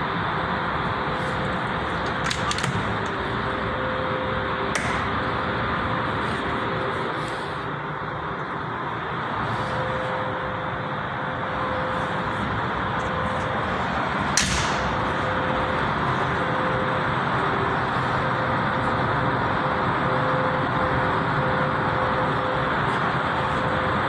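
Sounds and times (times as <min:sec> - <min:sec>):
sharp crack: 0:14.4 - 0:15.7.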